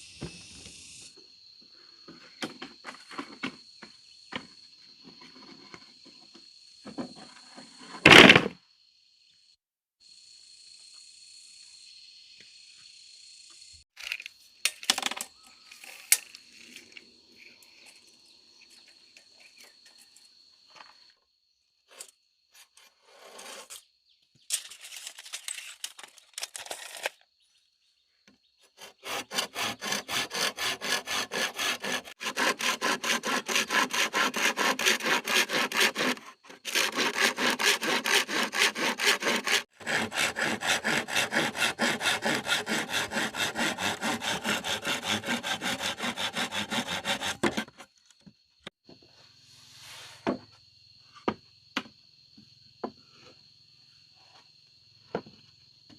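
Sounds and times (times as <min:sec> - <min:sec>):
hand saw cutting: 0:28.7 - 0:47.9.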